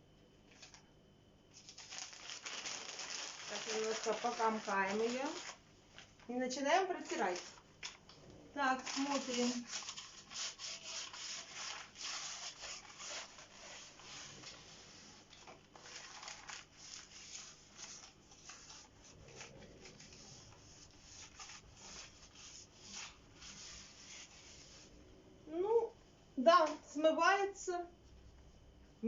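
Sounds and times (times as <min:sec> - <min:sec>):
newspaper rubbing on glass: 0:08.8 - 0:24.9.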